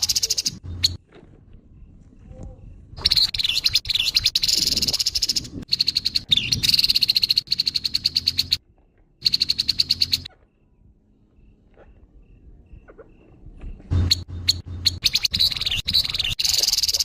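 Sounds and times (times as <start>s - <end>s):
bird buzzy rattle call: 0.0s - 1.0s, 3.0s - 8.6s, 9.2s - 10.3s, 14.0s - 17.0s.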